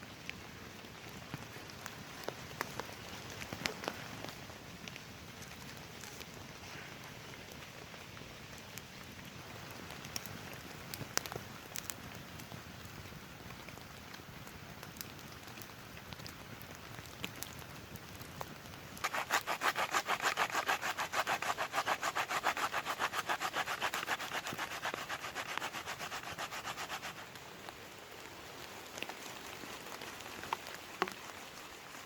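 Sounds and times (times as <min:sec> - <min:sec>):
rain pattering: 0:00.0 - 0:32.0
hand saw cutting wood: 0:19.0 - 0:27.2.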